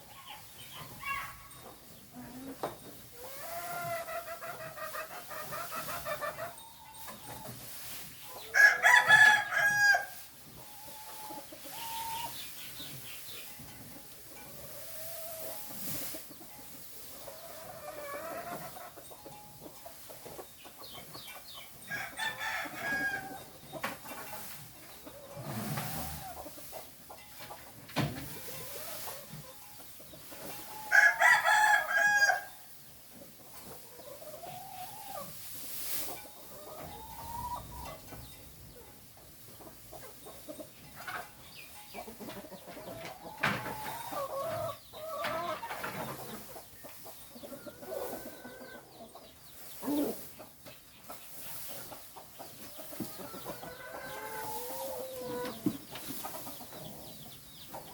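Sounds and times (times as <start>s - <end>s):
chickens clucking: 0.0s - 57.9s
rooster crowing: 8.6s - 10.2s, 30.8s - 32.5s.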